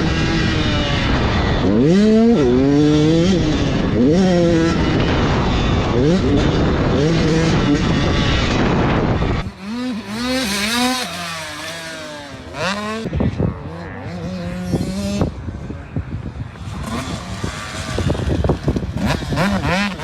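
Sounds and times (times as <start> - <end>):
dirt bike engine revving: 0.0 - 20.0
heavy wind noise: 0.0 - 20.0.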